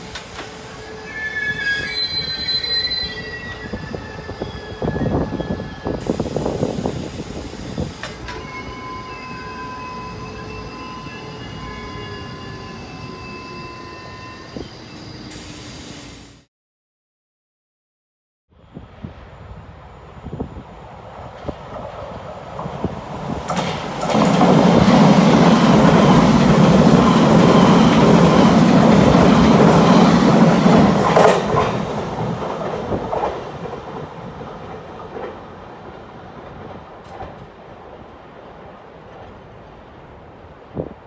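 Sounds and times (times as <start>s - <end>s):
train wheels clattering over rails: 21.6s - 37.6s.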